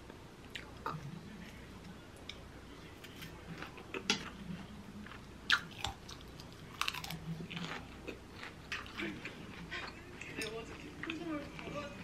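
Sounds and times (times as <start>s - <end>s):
crunchy chewing of salad: 2.9s - 11.6s.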